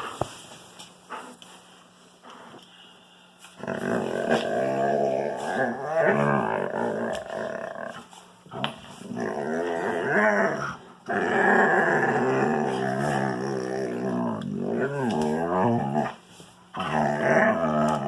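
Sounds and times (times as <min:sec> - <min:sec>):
dog growling while play-fighting: 0:03.6 - 0:18.0.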